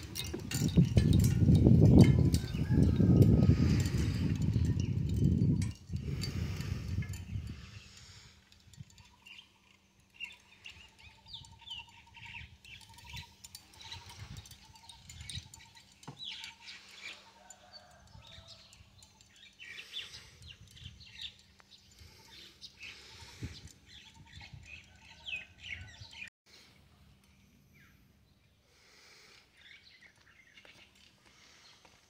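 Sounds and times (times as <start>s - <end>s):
birds chirping: 0.0s - 32.0s
rapid pulsed bird trill: 8.9s - 17.8s.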